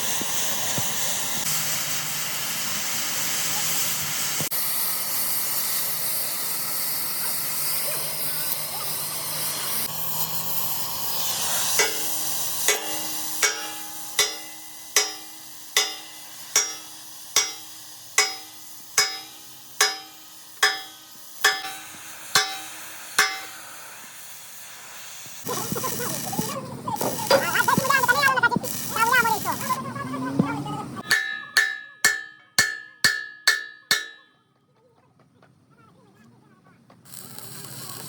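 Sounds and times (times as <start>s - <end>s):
steady hissing: 0.0s - 29.8s, 37.1s - 38.0s
hammer striking steel: 11.7s - 23.9s, 31.0s - 34.4s.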